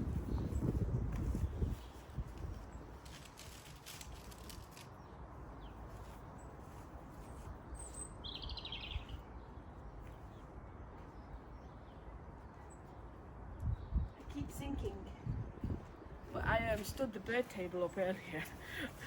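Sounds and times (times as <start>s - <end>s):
wind on microphone: 0.0s - 4.6s, 13.5s - 17.0s
small bird chirping trill: 0.1s - 16.4s.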